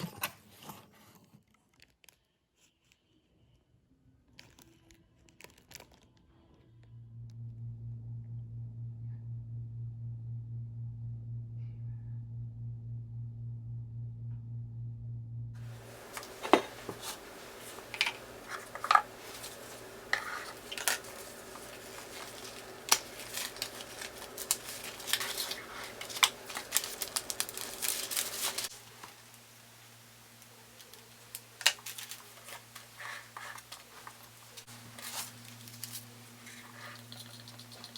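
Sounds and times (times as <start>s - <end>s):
low pulsing hum: 6.6s - 16.0s
small hard objects clinking: 15.6s - 29.2s
rustling: 15.6s - 37.9s.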